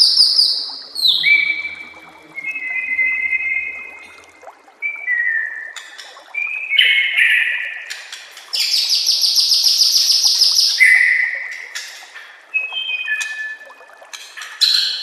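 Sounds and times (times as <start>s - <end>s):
bird singing whistles and trills: 0.0s - 4.1s, 4.8s - 8.0s, 8.6s - 11.8s, 12.5s - 13.9s.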